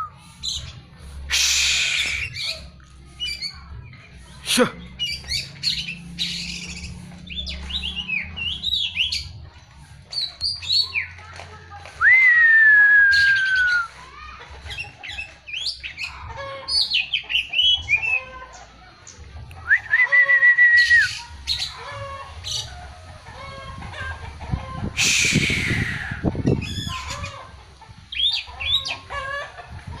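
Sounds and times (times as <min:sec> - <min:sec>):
harsh rasping bird call: 0:01.3 - 0:02.6, 0:25.0 - 0:27.2
bird song whistles and trills: 0:01.3 - 0:03.5, 0:12.0 - 0:14.0, 0:19.5 - 0:21.7, 0:25.0 - 0:27.3, 0:28.1 - 0:29.0.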